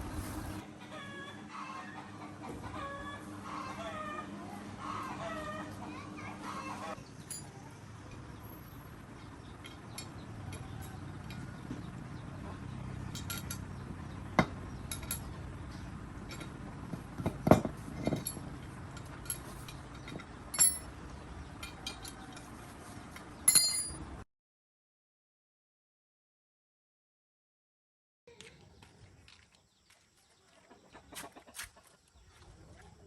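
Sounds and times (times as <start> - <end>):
metal tools clinking: 7.2 - 8.3, 9.5 - 11.8, 13.0 - 13.9, 14.7 - 24.1.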